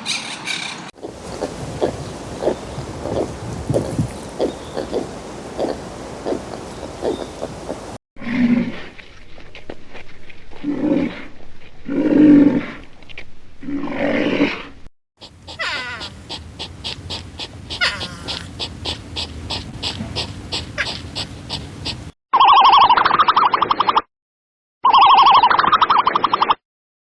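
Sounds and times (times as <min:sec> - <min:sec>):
animal pulsing call: 0:01.0 - 0:08.5, 0:15.2 - 0:23.0
deep animal roars: 0:08.2 - 0:09.0, 0:10.5 - 0:13.0, 0:13.6 - 0:22.0.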